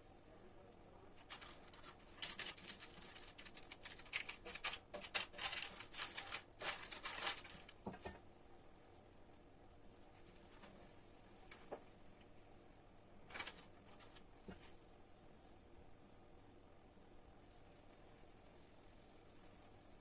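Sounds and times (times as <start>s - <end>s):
rustling and light clicks: 1.2s - 8.2s, 10.2s - 12.3s.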